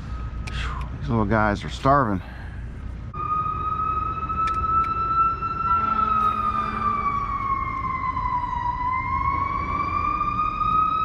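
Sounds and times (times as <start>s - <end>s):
low background rumble: 0.0s - 11.0s
distant siren wailing: 3.1s - 11.0s.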